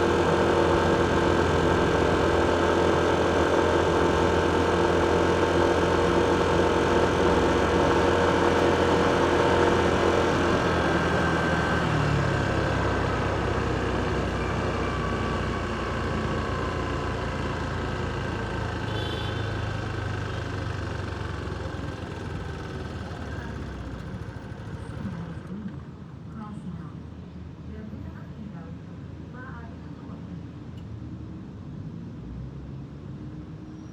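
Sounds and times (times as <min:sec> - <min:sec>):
vehicle engine running: 0:00.0 - 0:26.6
street traffic: 0:00.0 - 0:33.9.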